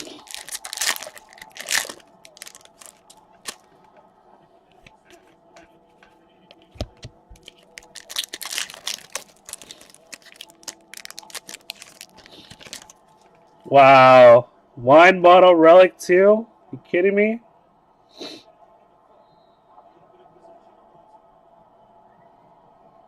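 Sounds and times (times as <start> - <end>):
foil wrapper crinkling and tearing: 0.0 - 3.7, 7.4 - 13.3.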